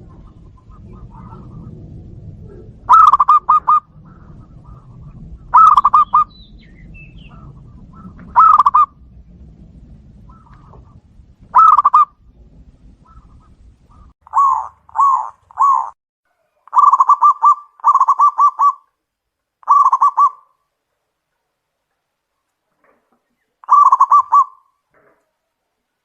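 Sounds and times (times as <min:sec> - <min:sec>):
dove cooing and trilling: 0:00.0 - 0:01.8, 0:02.4 - 0:09.0, 0:10.3 - 0:12.1, 0:13.0 - 0:16.0, 0:16.7 - 0:18.9, 0:19.6 - 0:20.5, 0:23.6 - 0:24.7.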